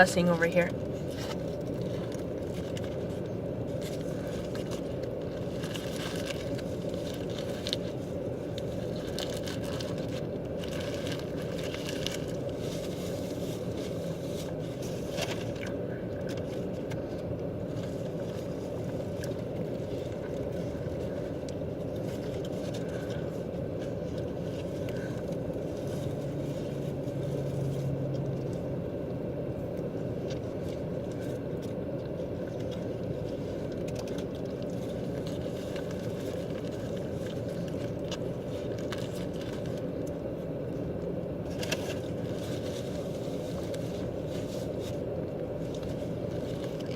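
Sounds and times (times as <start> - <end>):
car cabin engine rumble: 0.0 - 46.9.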